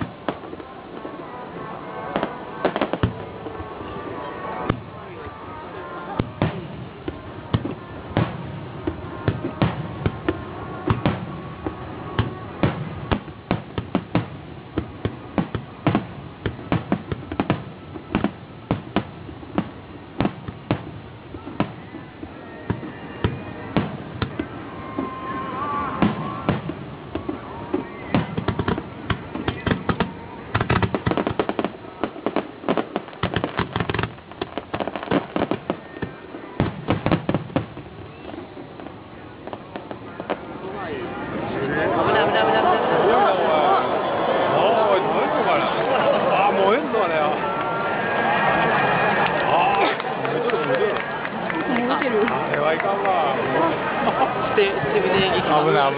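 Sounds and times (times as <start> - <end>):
fireworks bursting with bangs: 0.0 - 43.1
steady noisy background: 0.0 - 55.9.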